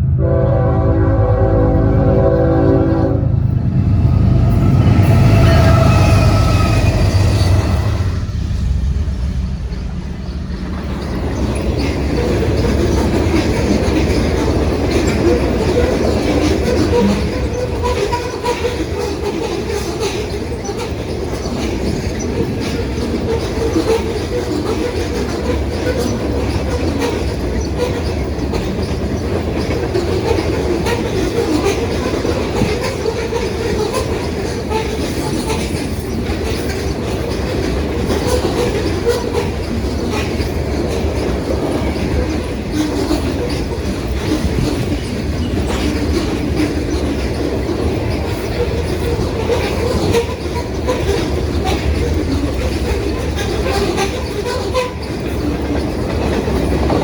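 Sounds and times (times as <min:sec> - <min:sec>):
train horn: 0:00.0 - 0:03.6, 0:04.3 - 0:08.2
locomotives rumbling: 0:00.0 - 0:57.0
wheels clattering over rail joints: 0:09.6 - 0:57.0.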